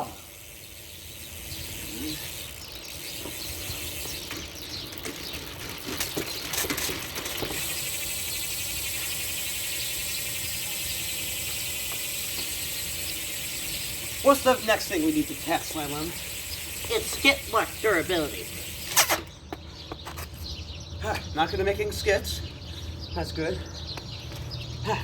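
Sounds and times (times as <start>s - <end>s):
bike motor whirring: 0.0s - 20.4s
clicks and rattles: 4.0s - 7.8s.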